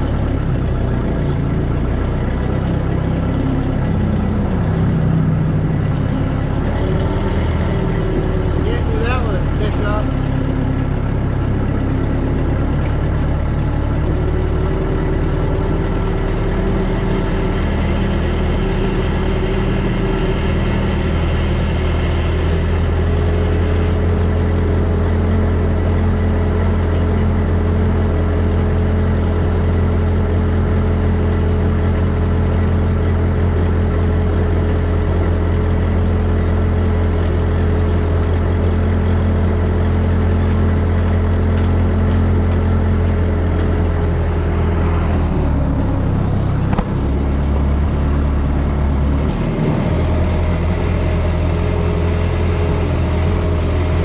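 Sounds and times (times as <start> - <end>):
heavy equipment engine humming: 0.0 - 54.0.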